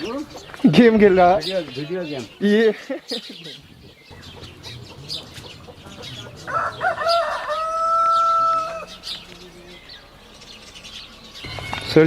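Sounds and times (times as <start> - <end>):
small birds chirping: 0.0 - 12.0
rooster crowing: 4.3 - 9.0.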